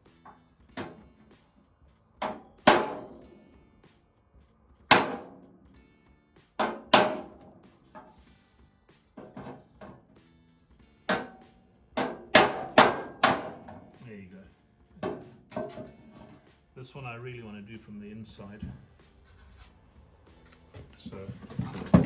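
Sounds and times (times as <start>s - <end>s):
hammer striking metal trim: 2.2s - 3.3s, 4.9s - 5.4s, 6.6s - 7.6s, 11.1s - 14.0s.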